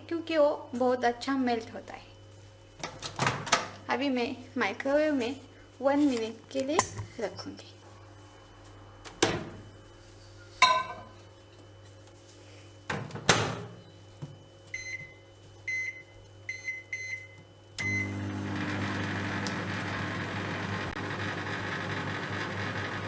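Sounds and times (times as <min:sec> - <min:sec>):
microwave oven humming: 0:07.9 - 0:23.0
keypad beeps: 0:14.8 - 0:15.1, 0:15.7 - 0:18.1.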